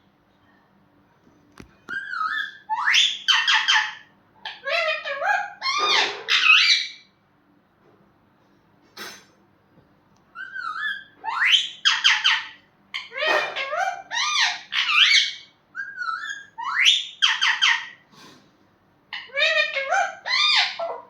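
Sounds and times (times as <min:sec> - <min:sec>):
parrot whistling and squawking: 0:01.9 - 0:07.1, 0:10.4 - 0:18.0, 0:19.1 - 0:21.0.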